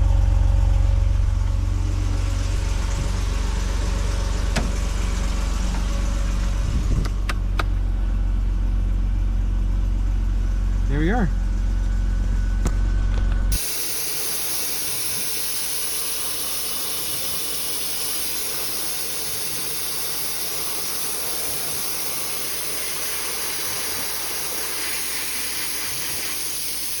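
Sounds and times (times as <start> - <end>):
compressed air hissing: 13.5 - 27.0.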